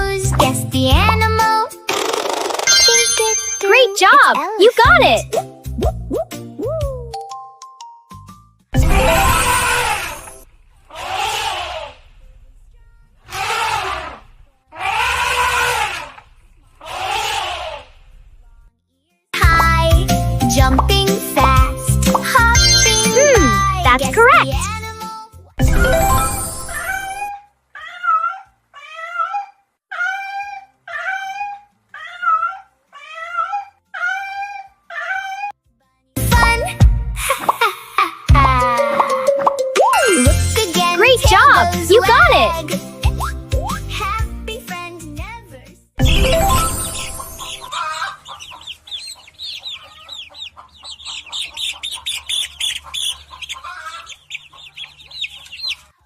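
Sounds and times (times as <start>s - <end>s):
small pet animal crying: 27.8s - 35.6s
chickens peeping and clucking: 47.4s - 56.0s.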